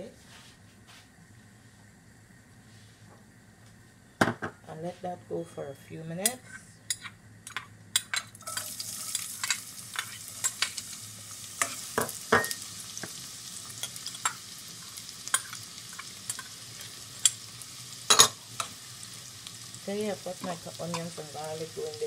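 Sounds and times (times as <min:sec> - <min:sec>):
onions sizzling in hot oil: 0:06.2 - 0:22.0
metal spoon scraping pan: 0:08.0 - 0:10.8.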